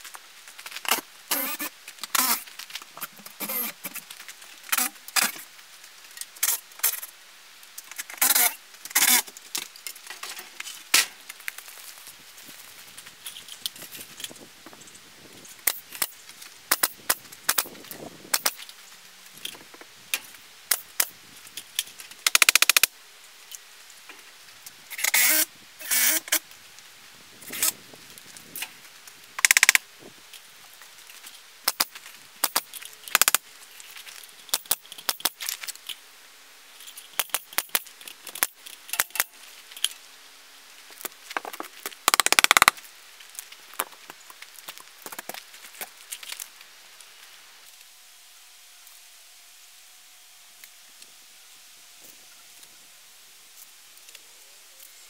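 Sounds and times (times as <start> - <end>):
nail gun shots: 29.4 - 29.8, 42.1 - 42.8.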